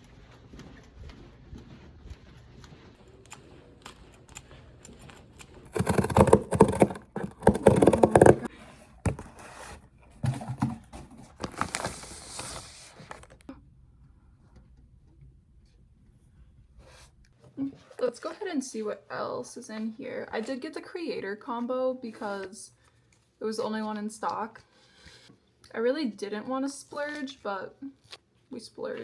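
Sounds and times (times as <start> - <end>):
scraping: 5.6 - 13.4
packaging rustling and clicking: 5.6 - 13.5.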